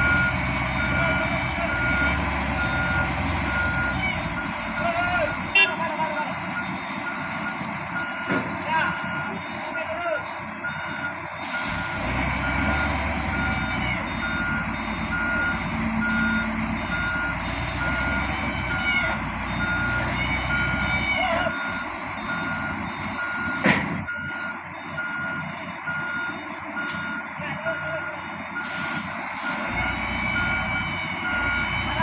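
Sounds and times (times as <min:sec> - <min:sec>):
reversing alarm beeping: 0:00.0 - 0:05.8, 0:06.5 - 0:32.0
diesel engine running: 0:00.0 - 0:32.0.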